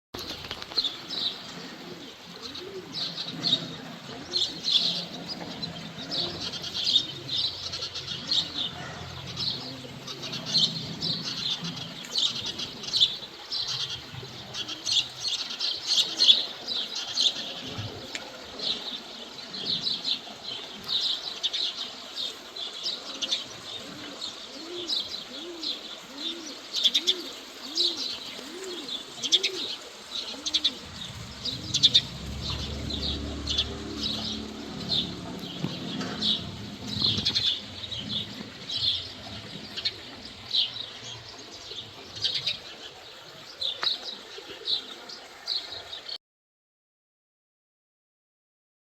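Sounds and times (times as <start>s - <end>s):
bird giving rhythmic low calls: 0.2s - 45.9s
small birds chirping: 0.2s - 46.2s.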